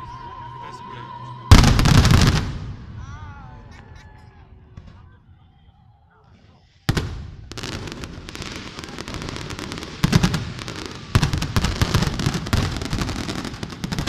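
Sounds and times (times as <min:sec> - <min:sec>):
firework bang: 0:01.5 - 0:03.0, 0:06.9 - 0:14.0
fireworks crackling: 0:01.5 - 0:03.0, 0:06.4 - 0:14.0
heavy firework booms: 0:01.5 - 0:03.2, 0:06.9 - 0:14.0.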